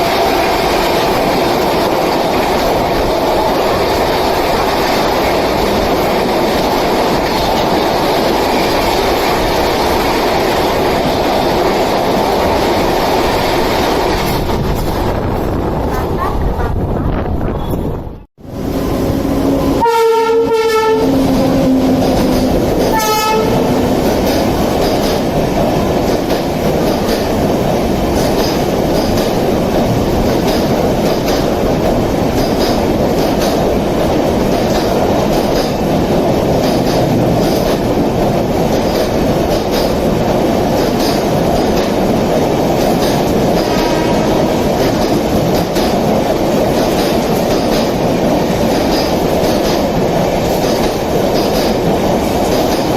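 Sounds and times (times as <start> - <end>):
train rumbling past: 0.0 - 52.9
locomotive horn blasts: 19.2 - 22.1, 22.9 - 23.9, 43.7 - 44.4
wheels clacking over rail joints: 20.8 - 52.9.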